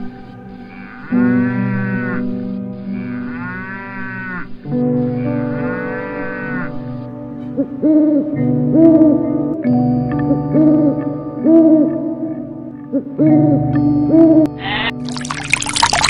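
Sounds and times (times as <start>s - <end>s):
cow mooing: 0.5s - 7.0s.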